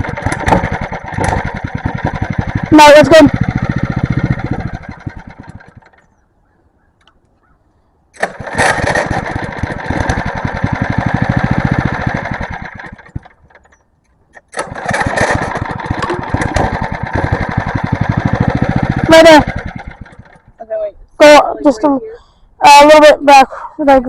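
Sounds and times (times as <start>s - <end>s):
small engine running: 0.0s - 6.1s, 8.2s - 13.8s, 14.5s - 20.6s.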